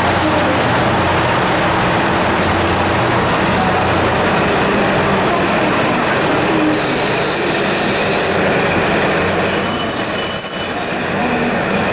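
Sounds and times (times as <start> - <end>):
train rumble: 0.0 - 11.9
high squeal in shifting tones: 9.1 - 11.2.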